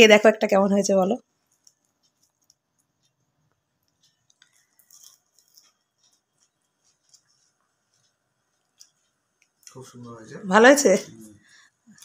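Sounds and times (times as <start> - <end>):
crunching crispy snack: 4.0 - 7.3.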